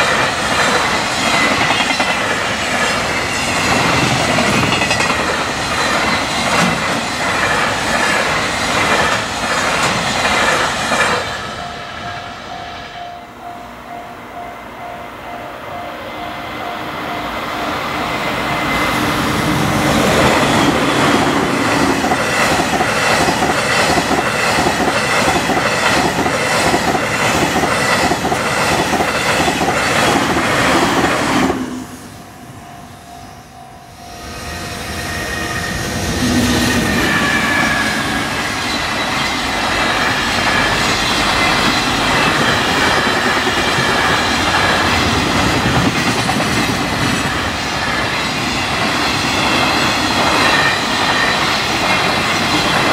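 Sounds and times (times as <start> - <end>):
crossing warning bell: 0.0 - 7.8, 11.1 - 30.2, 31.8 - 52.9
train wheels clattering: 0.0 - 11.6, 18.4 - 31.6.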